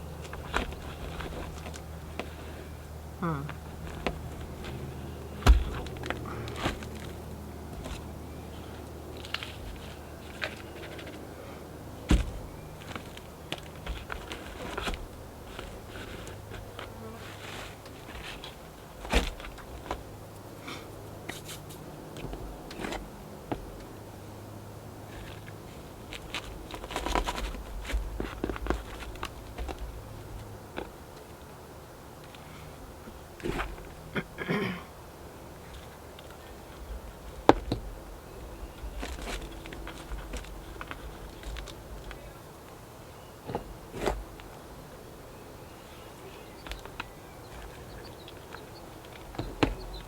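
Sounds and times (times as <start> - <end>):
potting soil rustling scrapes: 14.1 - 18.6
light clicks and rustling: 38.8 - 42.8.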